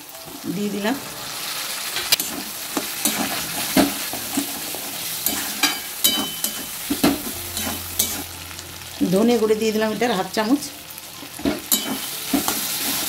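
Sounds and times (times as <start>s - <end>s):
vegetables sizzling in hot oil: 0.0s - 13.0s
metal spatula scraping a pan: 1.4s - 8.8s, 11.4s - 13.0s.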